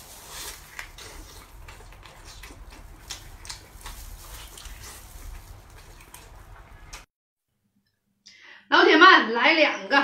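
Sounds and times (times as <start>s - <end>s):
man chewing sausage: 0.0s - 7.1s
wet mouth smacks: 2.0s - 3.7s.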